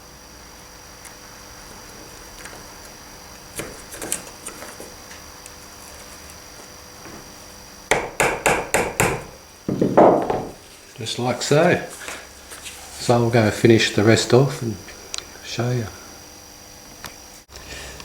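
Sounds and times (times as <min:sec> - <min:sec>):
small hammer tapping wire: 0:07.9 - 0:09.3.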